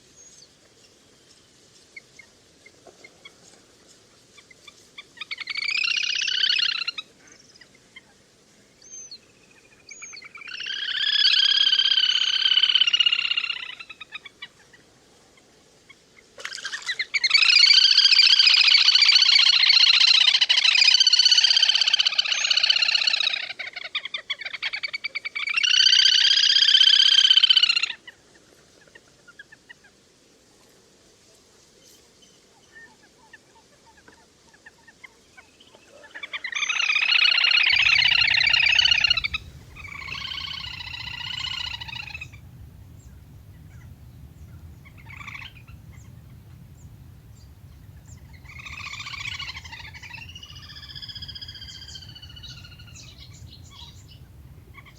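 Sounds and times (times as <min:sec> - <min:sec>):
bird trilling: 0:37.7 - 0:54.9
short single bird notes: 0:37.8 - 0:54.9.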